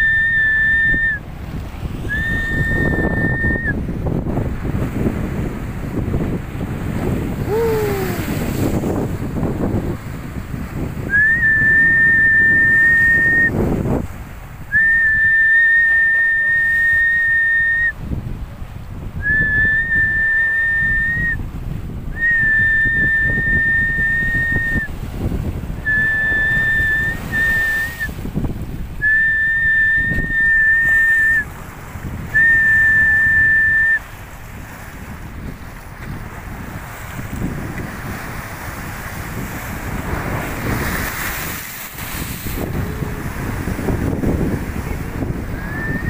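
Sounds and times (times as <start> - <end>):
whistle blasts: 0.0 - 1.2, 2.1 - 3.8, 11.1 - 13.6, 14.7 - 18.0, 19.2 - 21.4, 22.2 - 24.9, 25.9 - 28.2, 29.0 - 31.5, 32.4 - 34.0, 45.6 - 46.0
surf rumbling: 0.0 - 46.0
wind buffeting microphone: 0.0 - 46.0.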